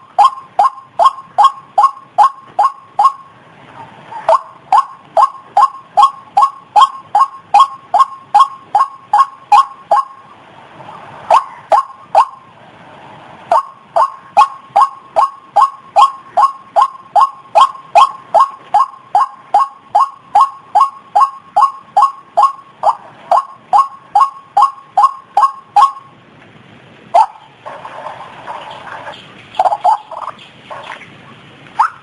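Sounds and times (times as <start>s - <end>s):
bird call repeated short notes: 0.0s - 3.4s, 4.1s - 10.3s, 11.3s - 12.4s, 13.5s - 26.2s, 31.8s - 32.0s.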